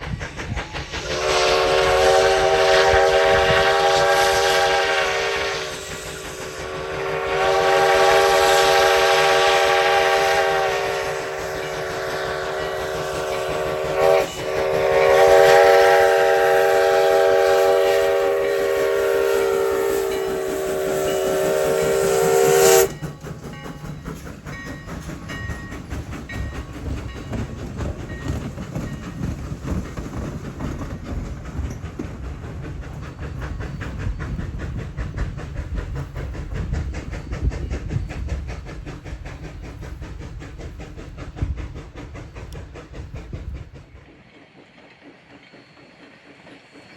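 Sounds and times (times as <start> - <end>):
train running rumble and clatter: 0.0 - 46.9
steam whistle chord: 1.0 - 23.1.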